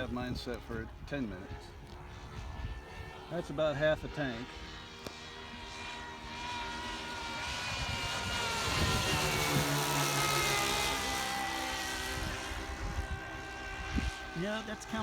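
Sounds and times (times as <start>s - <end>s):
model airplane engines flying past: 0.0s - 15.0s.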